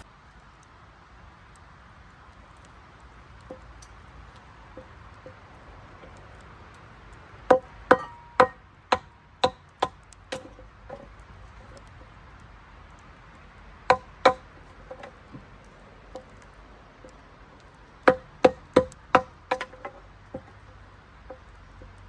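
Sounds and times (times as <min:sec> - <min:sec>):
blade chopping wood: 0:07.5 - 0:11.1, 0:13.9 - 0:15.4, 0:18.1 - 0:21.4.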